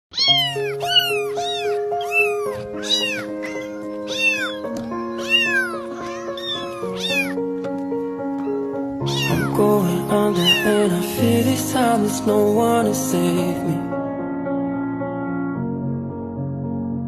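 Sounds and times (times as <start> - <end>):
kitten meowing: 0.1 - 7.4, 8.4 - 10.9
slow music with held chords: 0.3 - 17.0.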